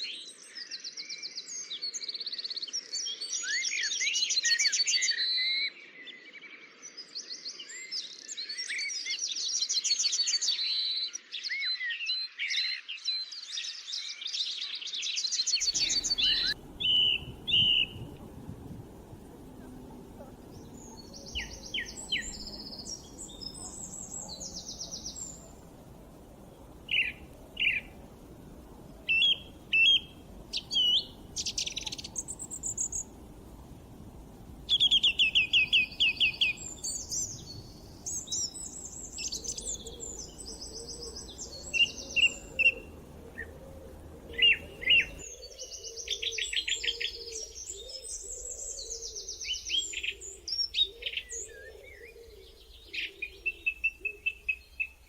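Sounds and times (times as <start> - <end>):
birds singing and calling: 0.0 - 55.0
loud rapid bird trill: 15.6 - 18.2.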